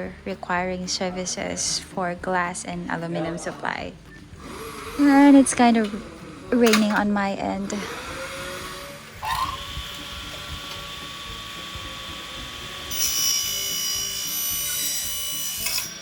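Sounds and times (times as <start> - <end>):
power drill whining: 4.4 - 7.0, 7.6 - 16.0.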